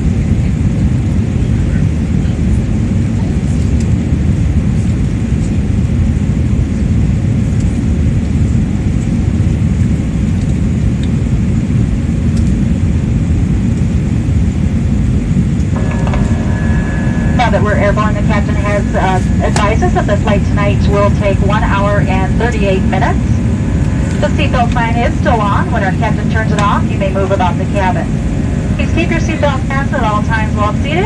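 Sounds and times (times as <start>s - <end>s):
airplane cabin engine rumble: 0.0s - 31.0s
steady hum: 1.0s - 31.0s.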